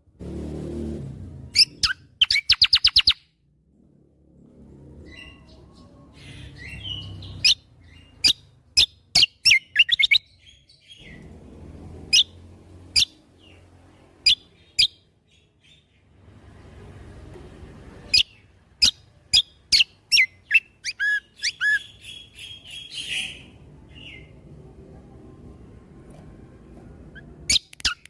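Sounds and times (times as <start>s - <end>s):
songbird whistling song: 1.5s - 3.3s, 5.1s - 11.3s, 12.1s - 12.4s, 14.2s - 15.9s, 18.1s - 24.4s, 27.1s - 28.0s.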